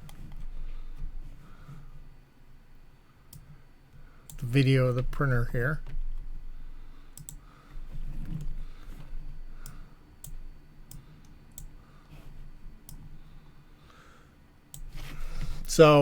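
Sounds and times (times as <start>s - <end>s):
faint low hum: 0.0s - 16.0s
computer mouse clicks: 3.3s - 3.6s, 7.1s - 7.5s, 8.2s - 11.8s, 12.8s - 13.1s, 14.7s - 15.0s.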